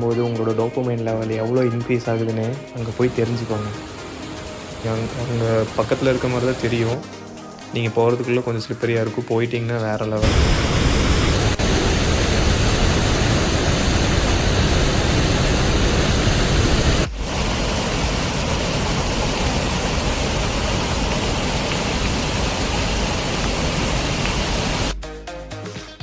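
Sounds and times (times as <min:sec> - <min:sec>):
waterfall rushing: 0:02.8 - 0:07.0, 0:10.2 - 0:25.0.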